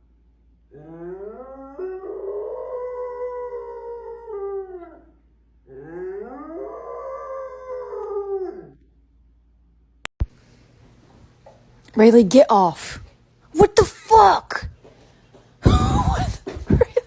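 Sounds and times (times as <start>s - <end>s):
dog howling: 0.8s - 5.1s, 5.7s - 8.8s.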